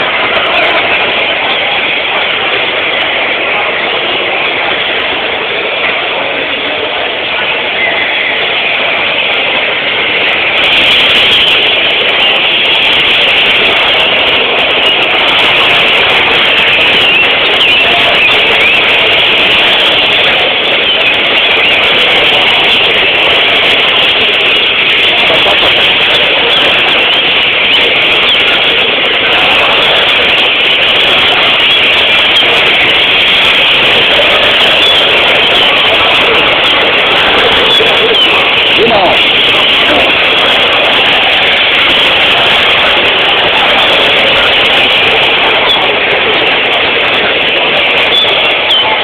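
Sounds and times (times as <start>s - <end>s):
chorus of finches singing: 7.8s - 45.9s, 47.9s - 49.0s.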